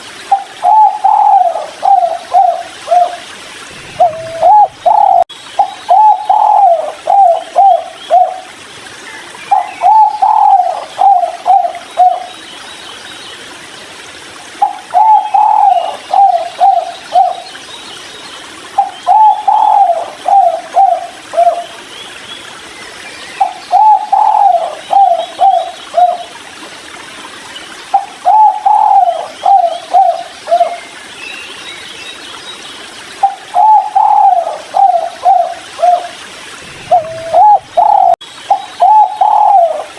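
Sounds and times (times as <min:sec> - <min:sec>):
dove cooing: 0:00.3 - 0:08.4, 0:09.5 - 0:12.3, 0:14.6 - 0:17.4, 0:18.8 - 0:21.6, 0:23.7 - 0:26.2, 0:28.0 - 0:30.8, 0:33.2 - 0:39.9.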